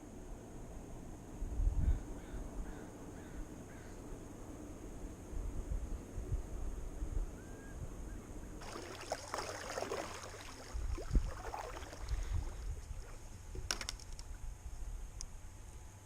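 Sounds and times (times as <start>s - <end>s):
paddle strokes splashing water: 8.6s - 14.0s.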